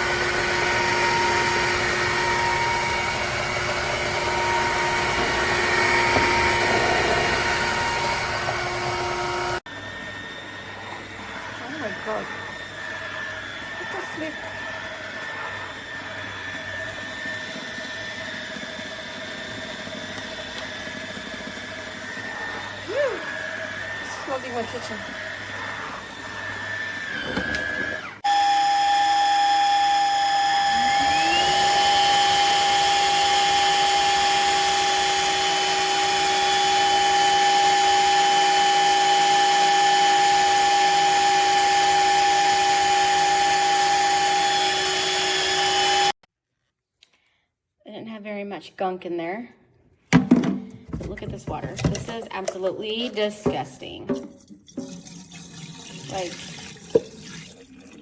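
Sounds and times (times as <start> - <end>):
vacuum mop motor whine: 0.0 - 46.2
suction rushing: 1.6 - 9.5.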